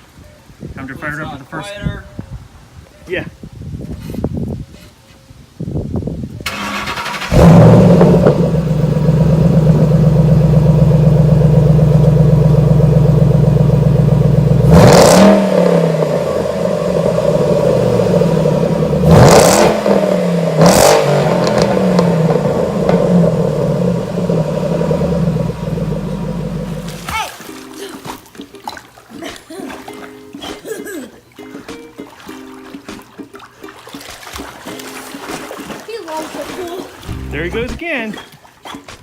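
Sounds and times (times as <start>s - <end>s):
car engine starting and idling: 6.4s - 27.0s
engine revving: 6.5s - 27.0s.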